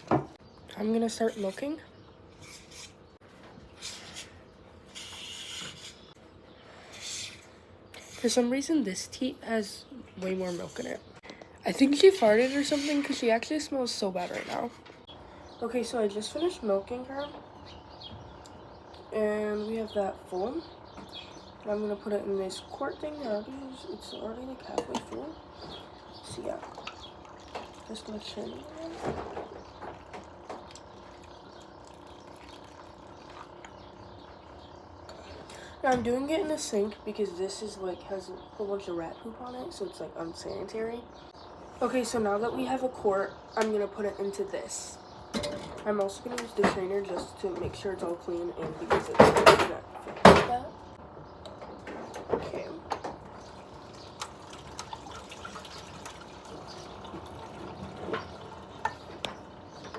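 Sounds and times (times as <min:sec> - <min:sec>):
milk pouring and dripping: 0:30.4 - 0:33.8, 0:53.4 - 0:59.0
tap water running into sink: 0:53.6 - 0:59.0.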